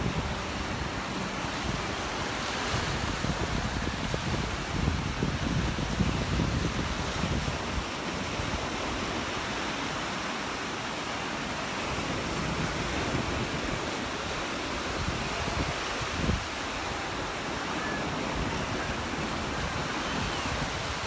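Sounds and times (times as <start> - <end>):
surf washing onto beach: 0.0 - 21.0
wind buffeting microphone: 0.0 - 21.0.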